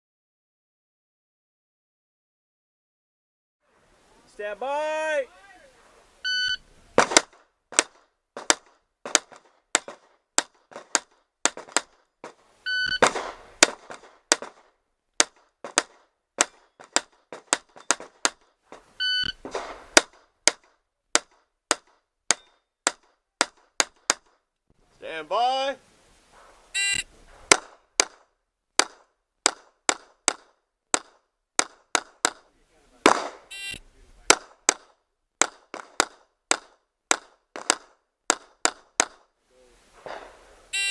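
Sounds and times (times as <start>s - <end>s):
person speaking: 4.1s - 6.0s, 24.9s - 25.8s
shot timer beep: 6.3s - 6.6s, 12.7s - 13.0s, 19.0s - 19.4s, 26.8s - 27.1s, 33.5s - 33.8s
pistol shots: 7.0s - 12.0s, 13.0s - 18.4s, 19.4s - 20.6s, 27.3s - 33.5s, 34.2s - 39.2s.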